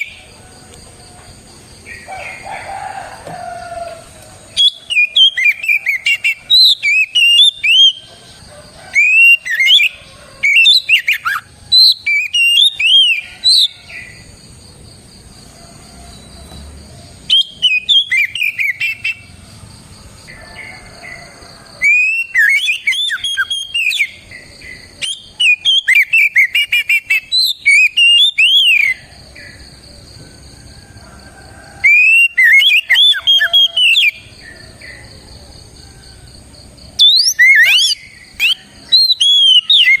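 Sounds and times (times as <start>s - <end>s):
bird whistling song: 4.5s - 8.1s, 8.9s - 13.8s, 17.2s - 19.3s, 21.8s - 24.2s, 24.9s - 29.0s, 31.8s - 34.2s, 37.0s - 40.0s.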